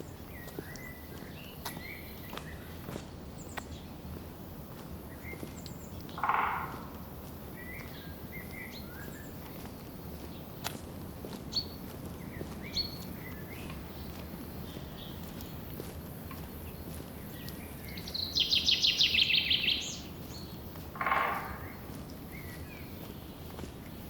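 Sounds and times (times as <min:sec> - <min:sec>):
forest birds chirping: 0:00.0 - 0:24.0
bird singing rapid trill: 0:18.0 - 0:21.8.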